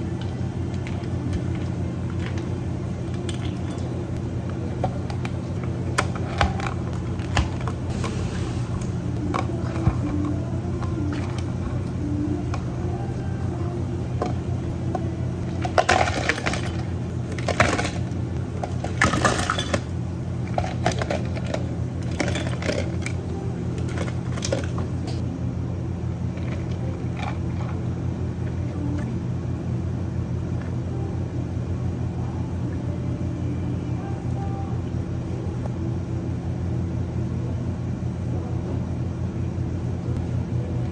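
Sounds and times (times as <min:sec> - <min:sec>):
low hum of cafe equipment: 0:00.0 - 0:40.9
cups and glassware clinking: 0:00.1 - 0:25.2.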